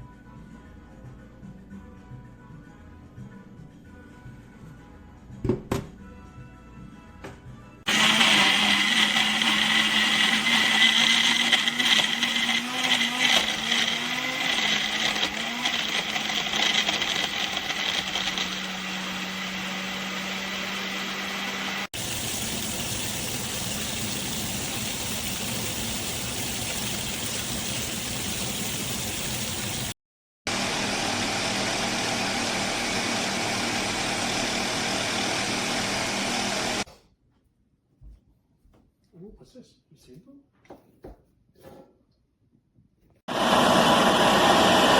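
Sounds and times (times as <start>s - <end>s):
blender motor running: 7.9s - 36.9s, 43.3s - 44.9s.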